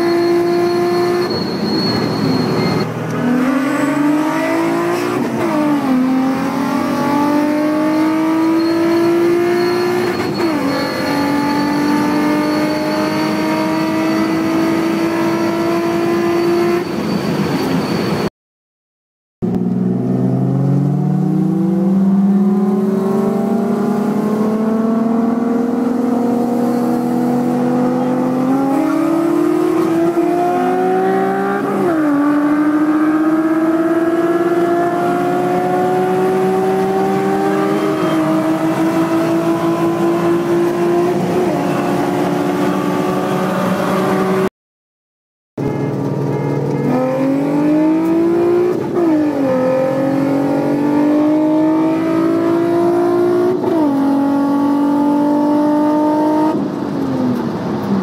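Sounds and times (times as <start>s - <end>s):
car engine accelerating hard: 2.5s - 16.8s, 19.4s - 44.5s, 46.0s - 58.0s.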